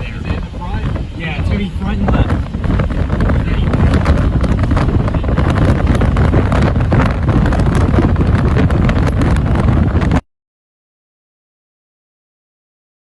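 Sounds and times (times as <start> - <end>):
storm wind buffeting microphone: 0.0 - 10.2.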